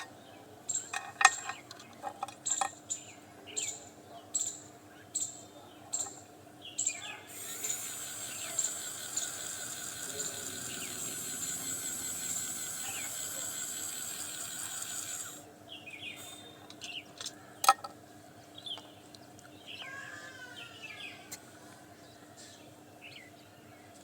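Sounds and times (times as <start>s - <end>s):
gear motor whining: 7.3s - 15.4s.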